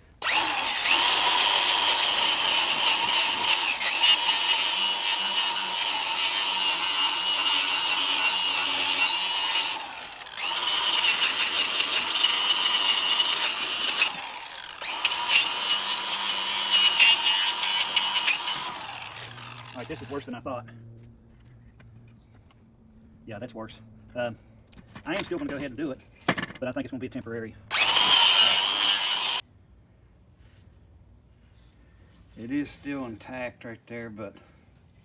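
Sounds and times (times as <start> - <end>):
power tool whine: 0.2 - 20.4, 27.7 - 29.4
grinding scraping on rusty metal: 0.2 - 20.8, 24.0 - 29.4.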